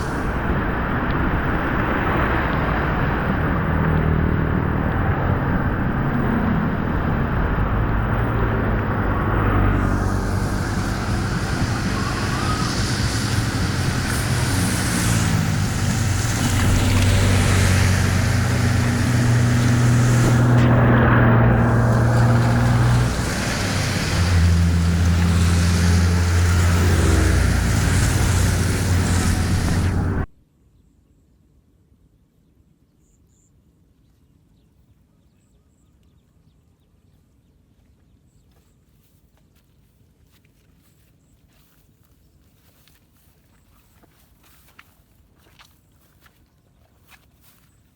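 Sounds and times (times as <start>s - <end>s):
low engine-like hum: 0.0s - 30.3s
water rushing: 0.0s - 30.3s.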